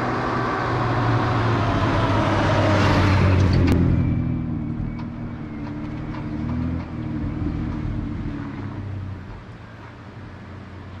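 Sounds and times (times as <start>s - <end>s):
motor vehicle engine running: 0.0s - 11.0s.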